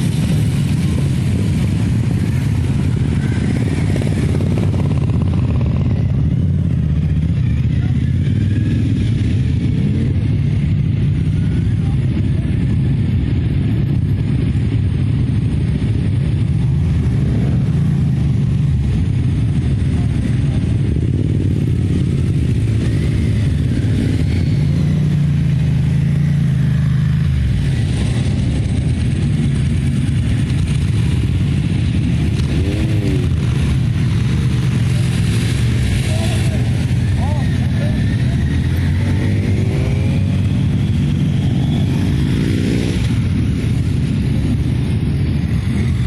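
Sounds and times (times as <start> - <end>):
motorcycle engines running: 0.0 - 46.0.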